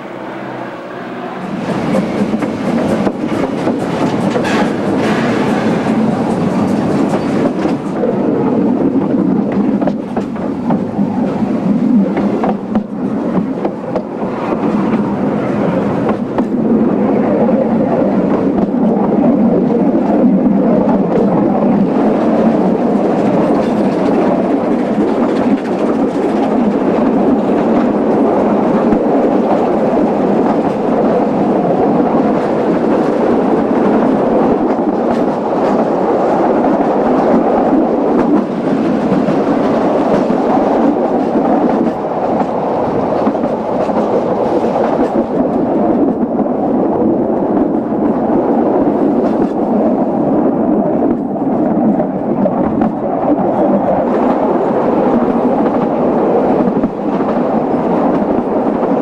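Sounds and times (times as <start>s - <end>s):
train carriages rumbling on rails: 0.0s - 59.0s.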